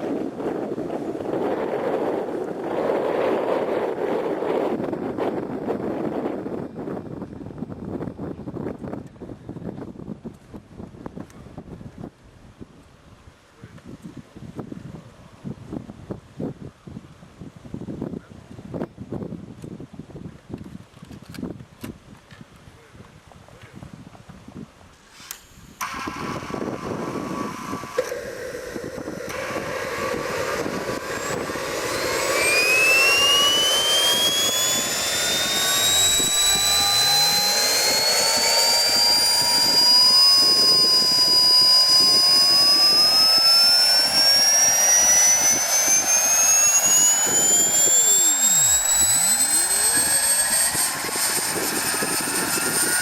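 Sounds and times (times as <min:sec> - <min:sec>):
gas turbine spooling up whine: 0:00.0 - 0:09.2, 0:25.0 - 0:53.0.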